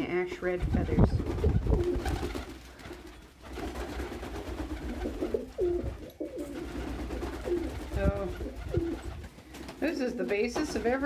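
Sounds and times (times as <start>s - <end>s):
pigeons cooing: 4.2s - 11.0s.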